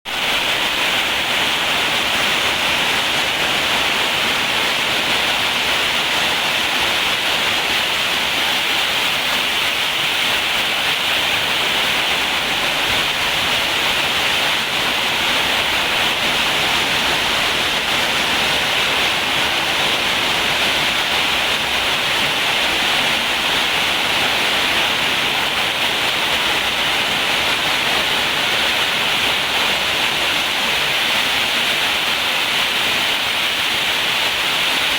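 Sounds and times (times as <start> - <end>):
rain falling: 0.1 - 34.9.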